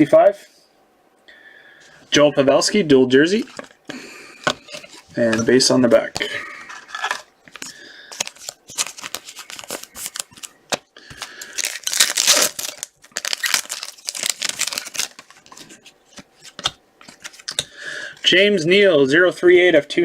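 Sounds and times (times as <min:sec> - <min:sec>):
cards clicking and rustling: 0:03.4 - 0:17.8.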